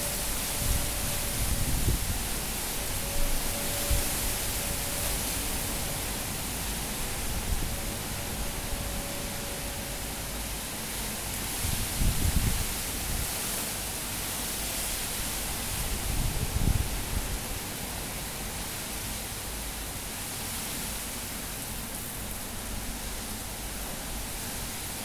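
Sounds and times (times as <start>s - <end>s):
strong wind rushing: 0.0s - 13.3s
wind buffeting microphone: 0.0s - 14.1s, 14.9s - 17.9s.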